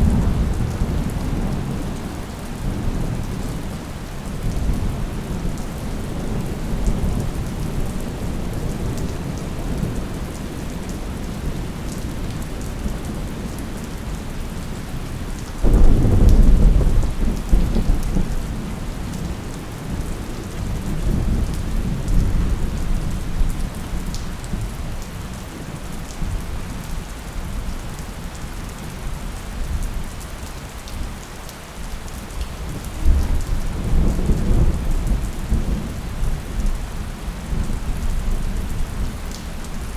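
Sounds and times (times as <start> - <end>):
rolling thunder: 0.0 - 3.6, 15.6 - 24.7
steady rain: 0.0 - 39.9
loud thunderclap: 15.6 - 18.5.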